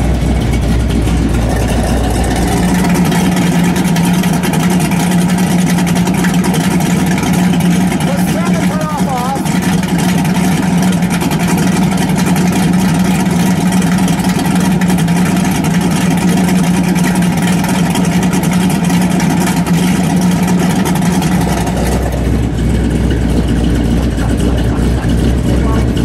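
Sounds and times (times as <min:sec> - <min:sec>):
car engine revving and idling: 0:00.0 - 0:26.0.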